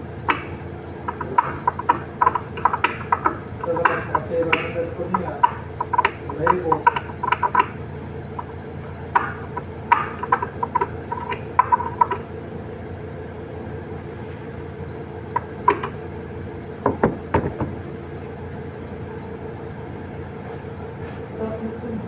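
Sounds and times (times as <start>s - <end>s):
machine humming: 0.0s - 20.4s
sharp knocks: 0.3s - 7.8s, 9.1s - 12.2s, 15.4s - 16.0s, 16.8s - 18.0s.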